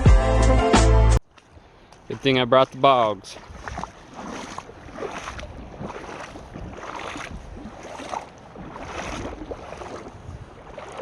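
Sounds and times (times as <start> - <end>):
footsteps crunching through snow: 1.9 - 10.2.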